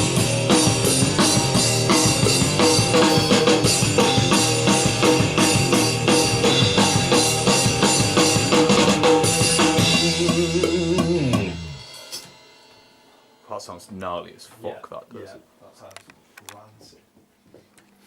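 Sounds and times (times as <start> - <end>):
rock music: 0.0 - 13.1.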